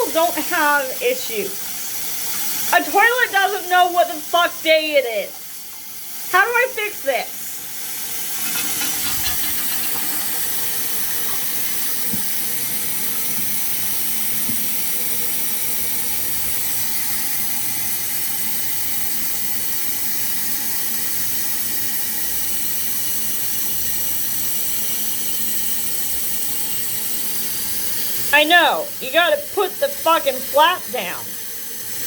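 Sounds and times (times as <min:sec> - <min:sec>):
water rushing into toilet tank: 0:00.0 - 0:32.0.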